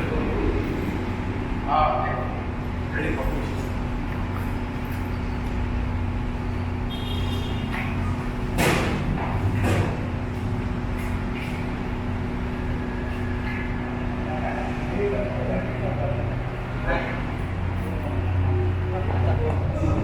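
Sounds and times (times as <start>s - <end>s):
steady engine hum: 0.0s - 20.0s
loud clunks of motorcycle loading: 7.8s - 10.1s.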